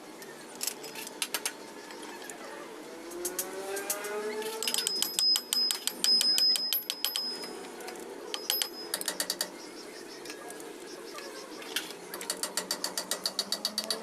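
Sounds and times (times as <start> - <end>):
ratchet wrench clicking: 12.2 - 14.0.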